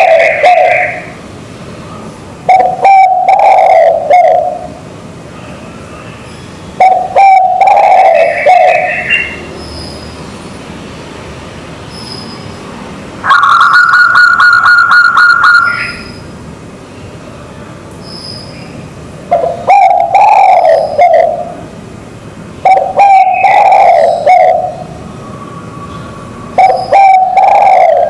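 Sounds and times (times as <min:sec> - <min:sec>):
dove cooing: 0:00.0 - 0:01.2, 0:02.5 - 0:04.8, 0:06.8 - 0:09.4, 0:13.2 - 0:16.0, 0:19.3 - 0:21.6, 0:22.6 - 0:24.9, 0:26.6 - 0:28.0
high rapidly pulsing bird call: 0:13.2 - 0:16.3, 0:22.6 - 0:24.9, 0:26.5 - 0:28.0.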